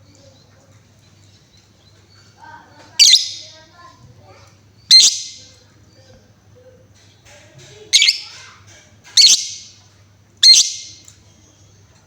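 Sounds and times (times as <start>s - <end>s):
lovebird high-pitched calls: 2.9s - 3.6s, 4.9s - 5.5s, 7.9s - 8.4s, 9.2s - 9.8s, 10.4s - 11.0s.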